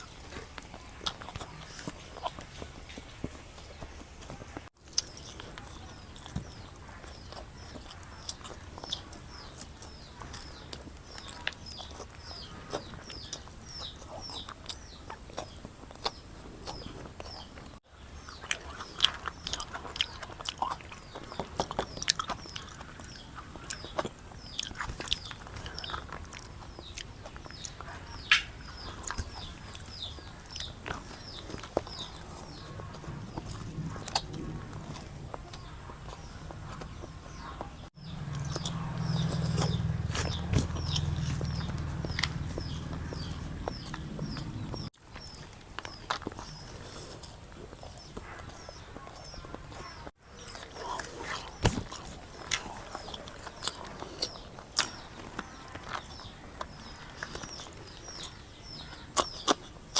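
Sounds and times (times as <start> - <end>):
person chewing and biting: 18.3 - 37.2, 38.0 - 59.9
crunchy bite: 38.1 - 59.8.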